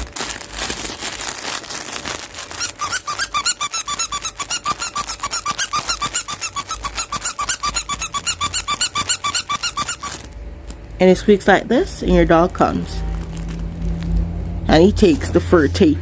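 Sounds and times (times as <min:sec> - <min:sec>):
toy rustling: 0:01.1 - 0:10.8
dog toy squeaking: 0:02.6 - 0:10.3.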